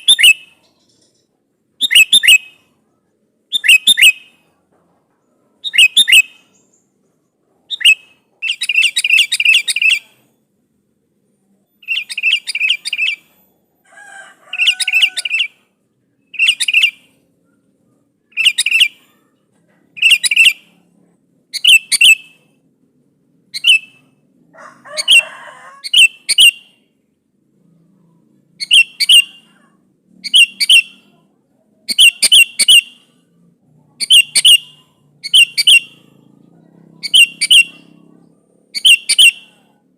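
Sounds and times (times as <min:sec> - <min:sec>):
bird chattering calls: 0:07.7 - 0:10.2, 0:11.8 - 0:13.4, 0:18.3 - 0:20.8, 0:24.8 - 0:26.8, 0:28.6 - 0:31.2, 0:31.8 - 0:33.2, 0:33.9 - 0:39.8.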